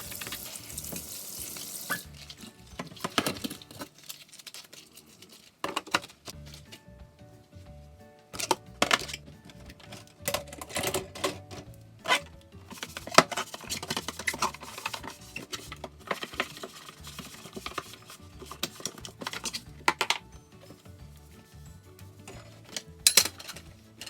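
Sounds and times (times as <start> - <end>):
soft background music: 0.0 - 24.0
dishes and utensils clattering: 1.9 - 6.4, 8.3 - 20.9, 22.2 - 24.0.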